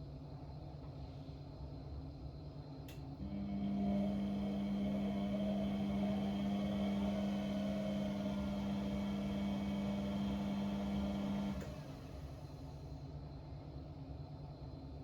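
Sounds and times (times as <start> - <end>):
electric pump motor humming: 3.2 - 12.0.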